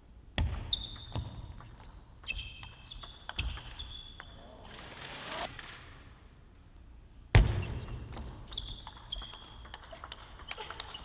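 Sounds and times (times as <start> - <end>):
table tennis ball clicks: 7.9 - 11.0.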